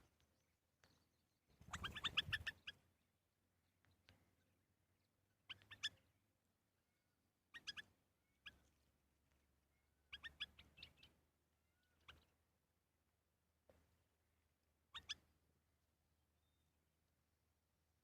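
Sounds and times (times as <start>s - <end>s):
bird chirping: 0.0s - 6.2s, 6.8s - 12.5s, 14.9s - 15.4s, 16.3s - 16.8s.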